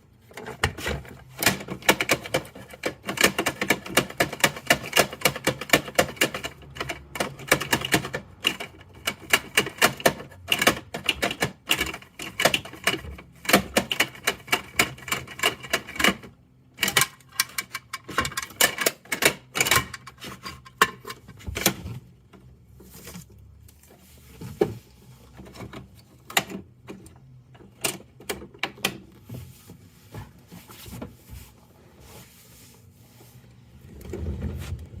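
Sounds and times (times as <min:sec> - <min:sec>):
plastic toy clicking and clattering: 0:00.2 - 0:21.8.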